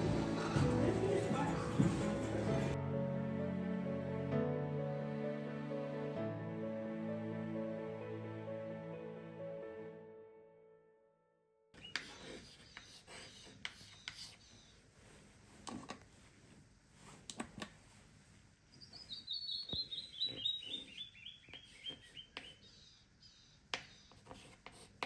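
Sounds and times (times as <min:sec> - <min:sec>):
recorded bird song: 0:11.8 - 0:14.7, 0:18.7 - 0:24.3.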